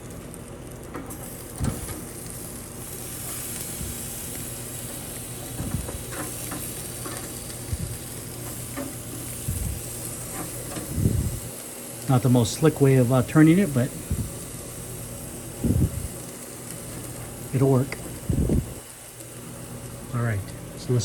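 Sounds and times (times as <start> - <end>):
steaks sizzling on grill: 0.0 - 21.0
knocks and scrapes on grill grate: 0.9 - 2.2, 4.9 - 11.5.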